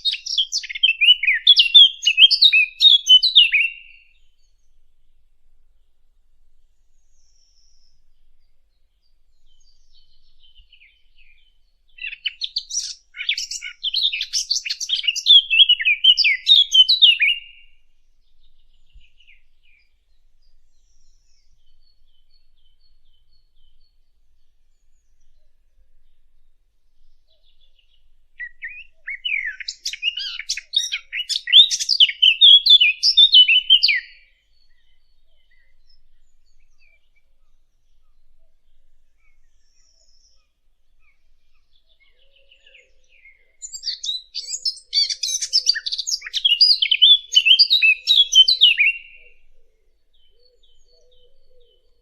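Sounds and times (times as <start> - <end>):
songbird warbling: 0.0 - 4.2, 9.5 - 17.7, 27.3 - 37.2, 39.2 - 49.5.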